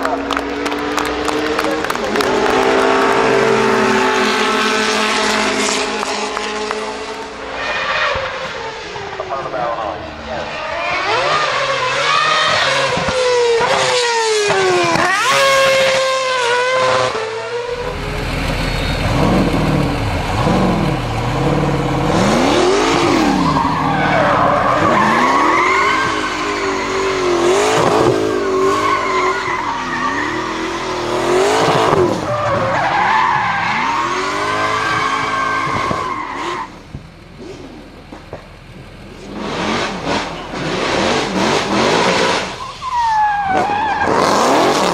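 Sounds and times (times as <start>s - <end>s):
race car engine revving: 0.0s - 44.9s
tyres squealing: 17.8s - 36.8s.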